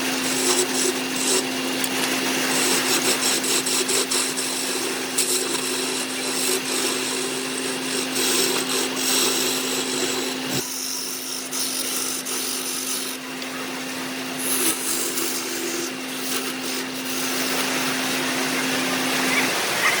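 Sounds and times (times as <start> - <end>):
tool scraping spinning wood: 0.0 - 20.0
wood lathe motor hum: 0.0 - 20.0.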